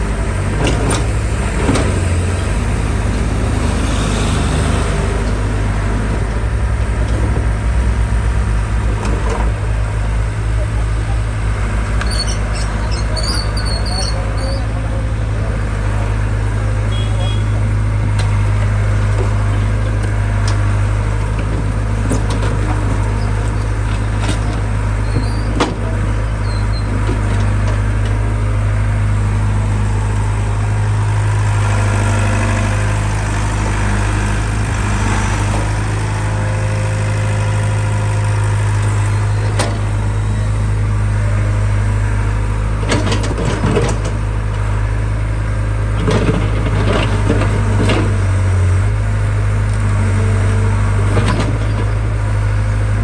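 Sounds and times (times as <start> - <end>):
diesel engine idling: 0.0 - 53.0
clatters and knocks: 42.8 - 44.2, 46.0 - 48.3.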